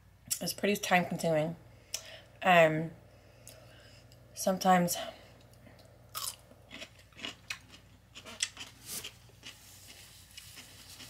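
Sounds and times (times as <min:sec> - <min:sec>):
wet crunchy chewing: 0:06.1 - 0:11.0.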